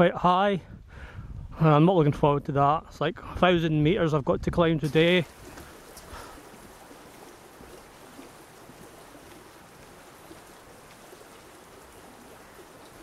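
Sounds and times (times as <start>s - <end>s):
light rain falling: 4.8s - 13.0s.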